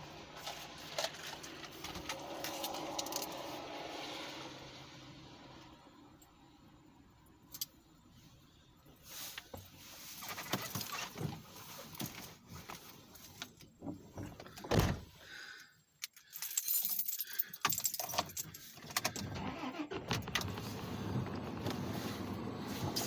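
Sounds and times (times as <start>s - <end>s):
handling rustles and clicks: 0.4s - 3.4s
keys jangling: 16.0s - 19.3s.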